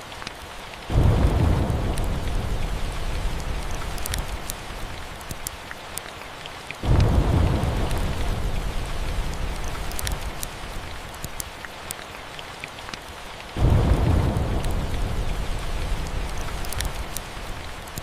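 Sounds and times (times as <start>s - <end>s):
steady rain: 0.0s - 18.0s
thunder rumbling: 0.9s - 5.5s, 6.8s - 11.4s, 13.6s - 18.0s
small sharp crackles: 3.0s - 6.2s, 9.0s - 13.1s, 14.6s - 18.0s.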